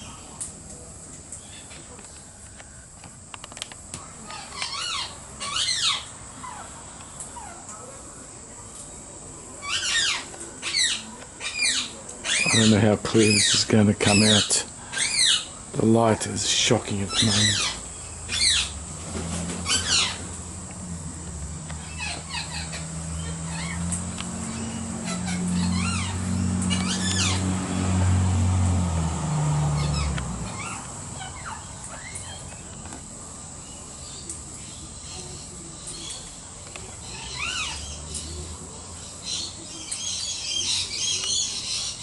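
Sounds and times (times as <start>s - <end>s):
harsh bird call: 16.5s - 18.8s.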